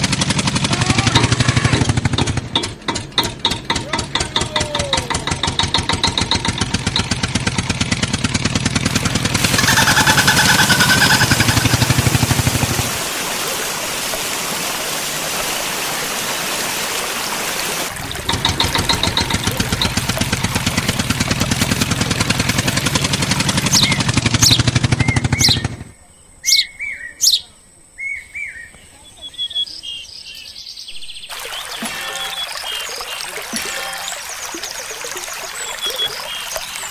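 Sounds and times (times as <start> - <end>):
tractor engine chugging: 0.0 - 13.0, 17.9 - 25.9.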